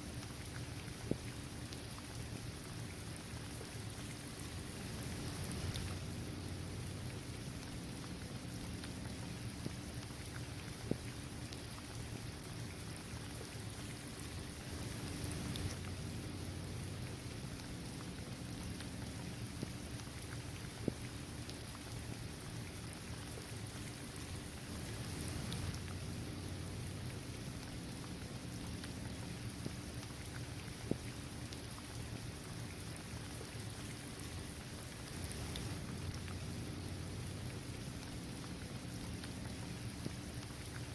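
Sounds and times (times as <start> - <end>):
rain falling on pavement: 0.1 - 40.9
raindrops ticking: 0.1 - 40.9.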